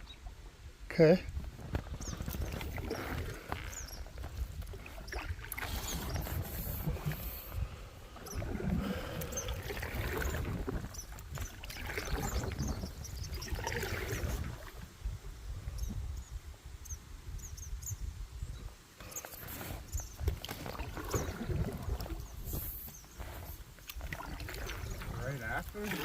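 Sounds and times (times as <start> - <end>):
wind rumble on microphone: 0.0 - 26.0
paddles splashing in water: 1.4 - 14.9, 19.1 - 26.0.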